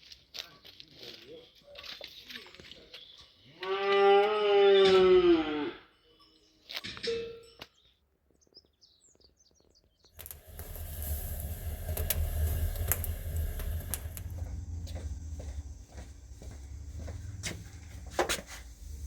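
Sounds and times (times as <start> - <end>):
wood fire crackling and popping: 10.2 - 19.0.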